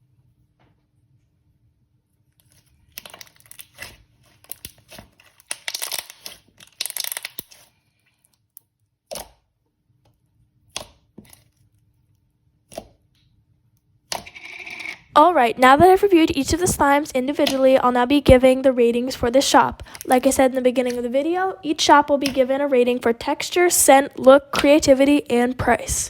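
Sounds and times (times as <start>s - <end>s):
slime crackling and popping: 2.4s - 7.7s.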